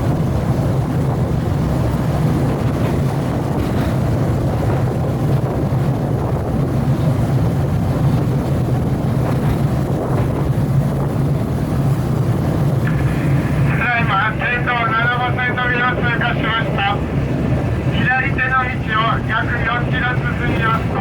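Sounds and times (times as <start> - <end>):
rail car engine drone: 0.0 - 21.0
rumbling wheels on track: 0.0 - 21.0
wind buffeting microphone: 0.0 - 21.0.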